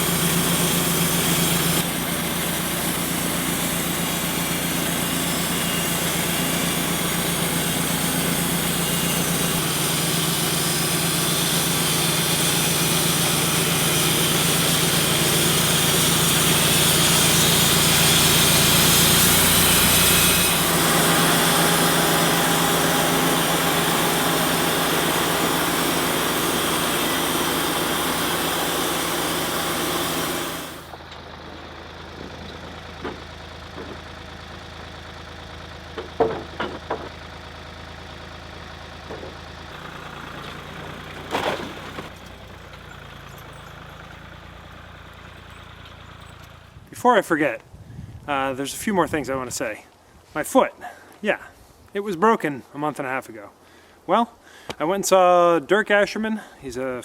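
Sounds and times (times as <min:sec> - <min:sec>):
broad hiss of sawing: 0:00.0 - 0:31.0
band sawmill engine running: 0:00.0 - 0:47.3.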